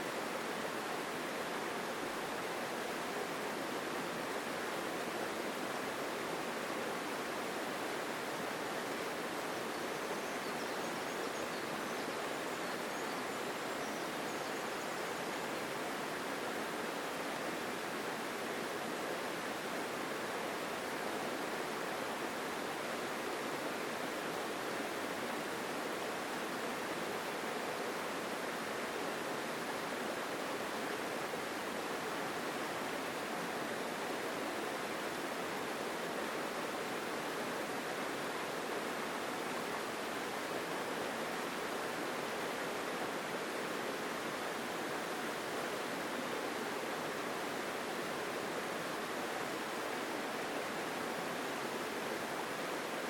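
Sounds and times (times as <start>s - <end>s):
stream flowing strongly: 0.0s - 53.0s.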